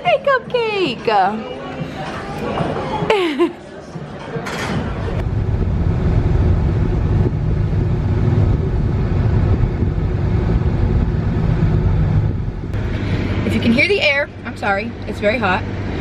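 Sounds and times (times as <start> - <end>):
car air conditioning blowing: 5.2 - 16.0
car engine running: 5.2 - 16.0.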